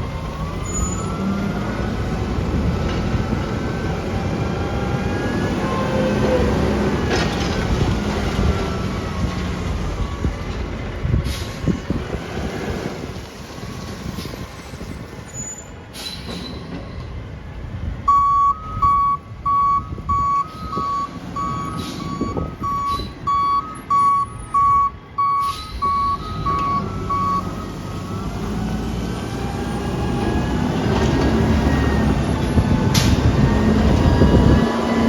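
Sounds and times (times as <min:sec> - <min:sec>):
truck engine: 0:00.0 - 0:35.0
truck backup alarm beeping: 0:00.1 - 0:01.7, 0:04.8 - 0:07.0, 0:18.0 - 0:28.8, 0:31.4 - 0:35.0.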